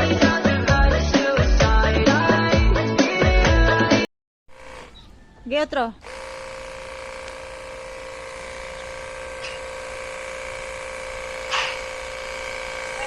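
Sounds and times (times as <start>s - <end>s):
vacuum cleaner motor whining: 4.5s - 5.0s, 6.0s - 13.0s.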